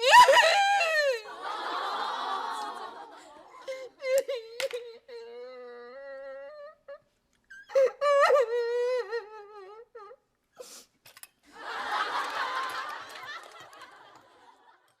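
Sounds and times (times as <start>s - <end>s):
laughter: 1.2s - 3.8s, 11.5s - 15.0s
person humming: 3.8s - 7.0s.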